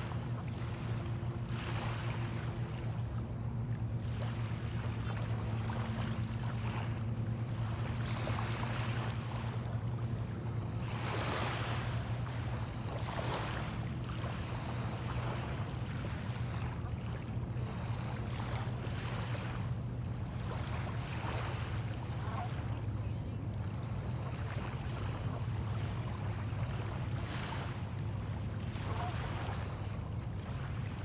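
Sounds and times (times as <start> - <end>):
waves washing on shore: 28.7 - 29.9.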